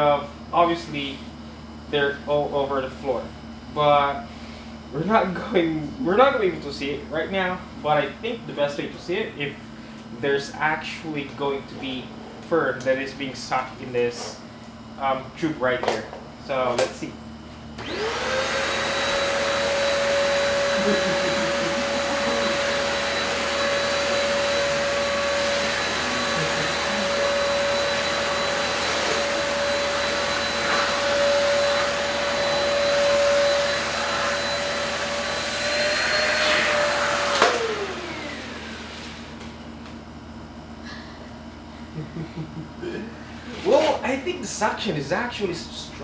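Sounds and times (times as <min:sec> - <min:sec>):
vacuum cleaner motor whining: 0:17.7 - 0:40.4.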